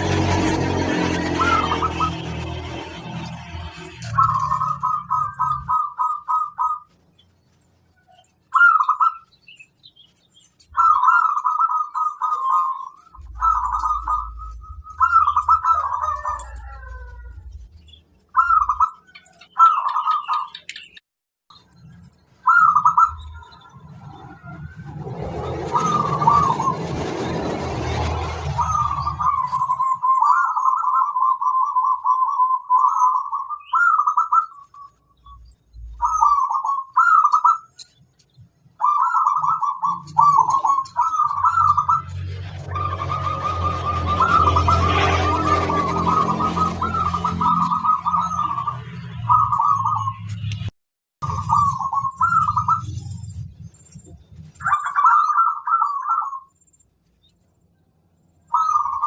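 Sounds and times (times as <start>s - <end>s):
dove cooing: 0.0s - 2.5s, 4.0s - 7.0s, 8.0s - 9.4s, 10.6s - 17.6s, 18.3s - 20.6s, 22.4s - 34.9s, 36.0s - 38.0s, 38.8s - 50.2s, 51.2s - 52.9s, 54.6s - 56.5s, 58.5s - 59.0s
faint high bird chirps: 3.8s - 25.0s, 51.2s - 59.0s.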